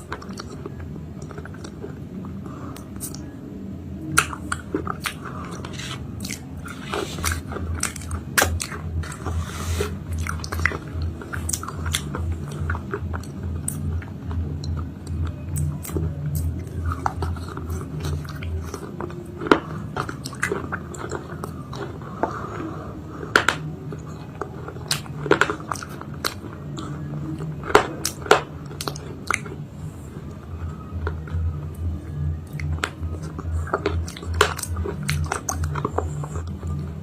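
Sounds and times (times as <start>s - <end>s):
crunchy chewing: 4.0s - 37.0s.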